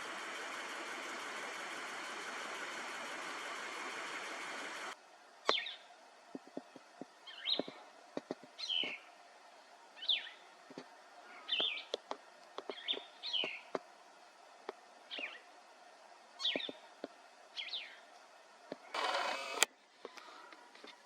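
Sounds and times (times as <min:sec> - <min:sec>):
sharp clicks: 0:19.0 - 0:20.3.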